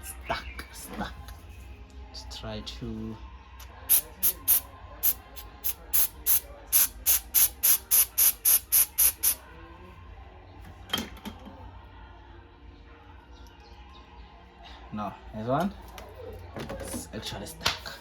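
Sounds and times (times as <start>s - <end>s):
aerosol spray can hissing: 3.9s - 9.4s.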